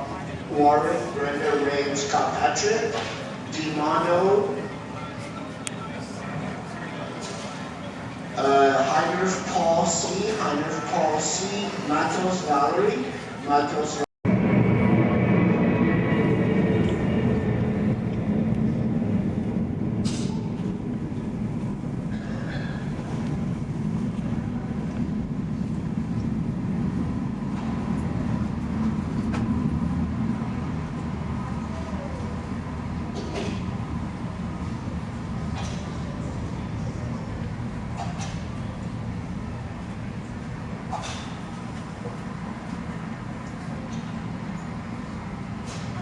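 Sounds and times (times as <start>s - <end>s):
vehicle rumbling in motion: 14.3s - 46.0s.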